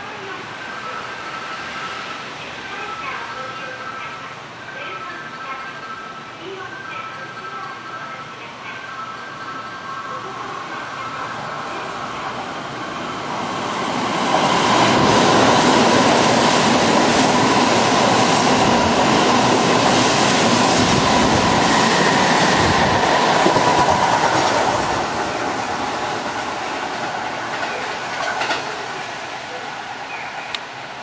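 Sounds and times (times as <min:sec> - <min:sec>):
electric train whine: 0:00.0 - 0:31.0
train wheels clattering: 0:26.3 - 0:28.9.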